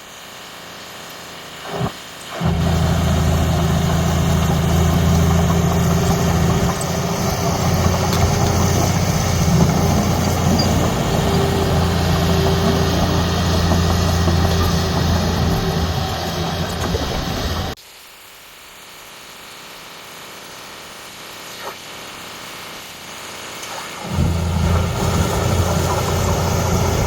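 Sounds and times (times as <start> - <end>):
heavy diesel engine humming: 2.4 - 17.8, 24.0 - 27.0.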